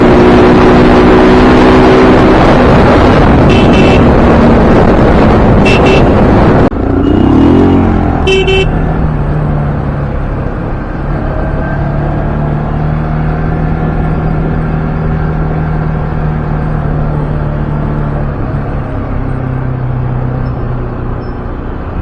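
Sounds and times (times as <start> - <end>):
motorcycle wind and road noise: 0.0 - 22.0
vehicle horn toots: 3.4 - 4.1, 5.6 - 6.3, 8.2 - 8.9.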